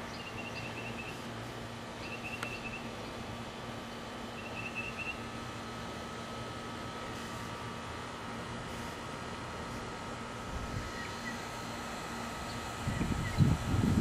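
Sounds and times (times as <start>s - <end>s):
steady low hum: 0.0s - 14.0s
small bird chirping: 0.1s - 1.2s, 2.0s - 2.9s, 4.4s - 5.2s, 12.4s - 13.6s.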